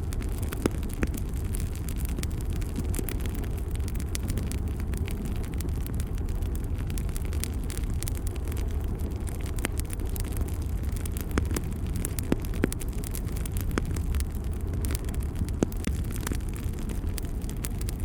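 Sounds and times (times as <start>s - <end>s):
fire crackling and popping: 0.0s - 18.0s
wood fire rumbling: 0.0s - 18.0s.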